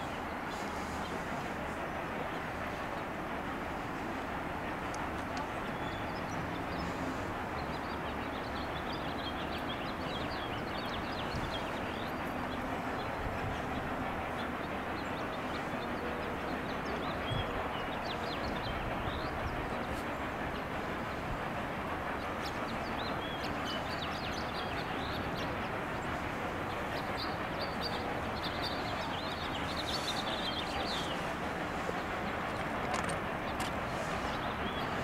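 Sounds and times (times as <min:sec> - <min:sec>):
steady rushing noise: 0:00.0 - 0:35.0
small birds chirping: 0:22.2 - 0:35.0.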